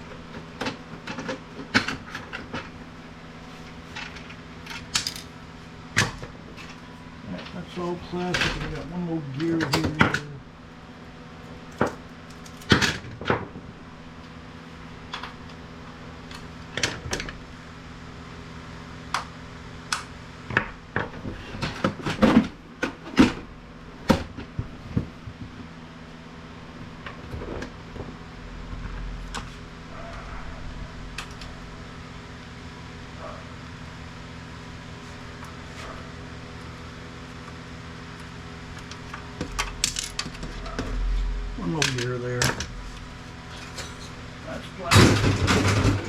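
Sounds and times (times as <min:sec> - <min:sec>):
steady low hum: 0:00.0 - 0:46.0
plastic parts clicking and knocking: 0:04.0 - 0:05.3.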